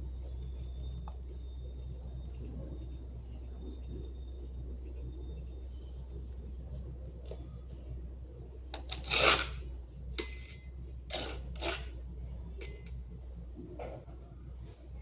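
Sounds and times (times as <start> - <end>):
steady low hum: 0.0 - 15.0
rasping scraping strokes: 8.8 - 10.4, 11.1 - 12.0.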